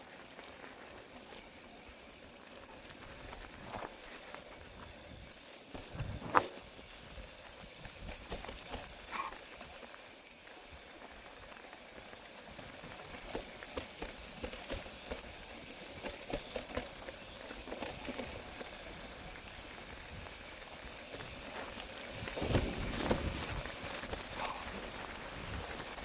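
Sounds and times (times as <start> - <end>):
gear rattling: 0.3 - 7.5.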